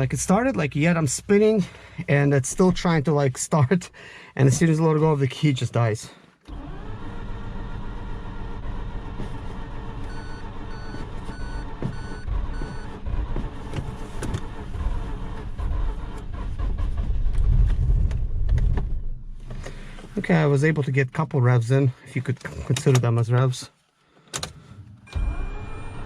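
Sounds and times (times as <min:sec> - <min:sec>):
engine cranking on starter: 0:06.5 - 0:17.5, 0:24.4 - 0:26.0
short electronic beeps: 0:10.1 - 0:12.9.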